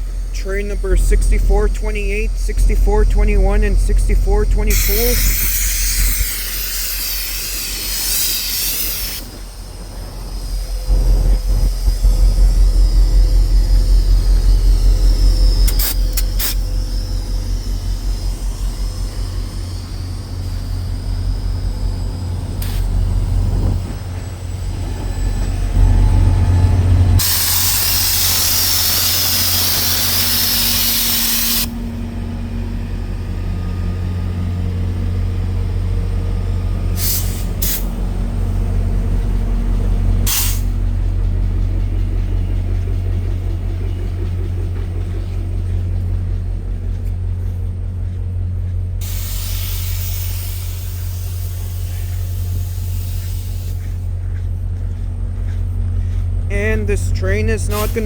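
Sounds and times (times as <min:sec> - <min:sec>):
diesel locomotive idling: 0:00.0 - 0:58.0
air brakes hissing: 0:04.7 - 0:12.2, 0:15.6 - 0:24.2, 0:27.2 - 0:31.8, 0:36.8 - 0:38.2, 0:40.2 - 0:40.9, 0:49.0 - 0:54.5.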